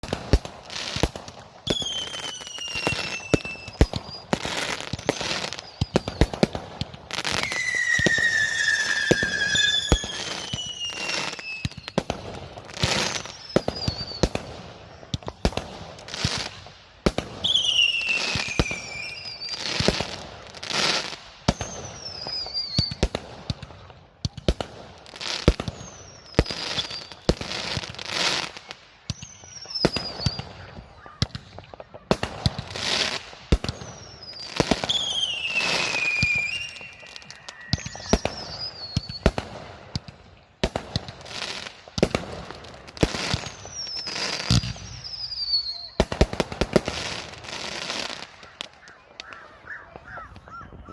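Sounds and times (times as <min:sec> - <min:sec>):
fireworks bangs and crackles: 0:00.0 - 0:50.9
whistling rockets: 0:00.0 - 0:50.9.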